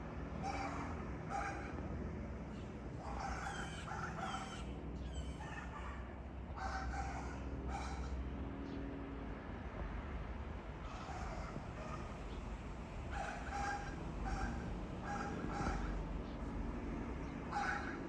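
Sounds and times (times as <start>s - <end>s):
harsh bird calls: 0.3s - 1.8s, 2.5s - 5.9s, 13.1s - 16.5s, 17.2s - 18.0s.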